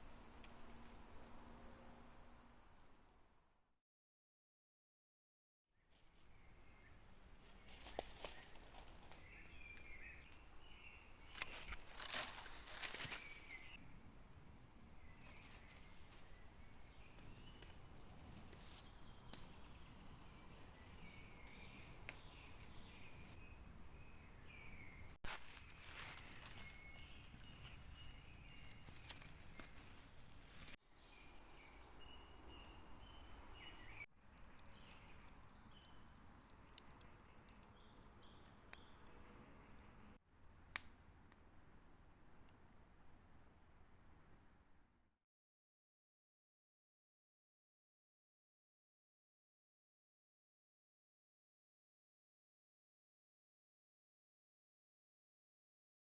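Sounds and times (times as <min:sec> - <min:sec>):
steady background hiss: 0:00.0 - 0:03.6, 0:06.0 - 0:34.1
faint bird chirps: 0:25.9 - 0:29.8.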